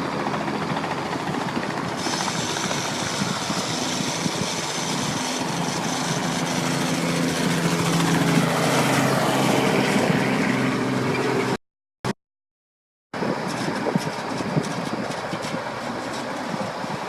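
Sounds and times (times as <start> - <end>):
truck engine running: 0.0 - 11.6.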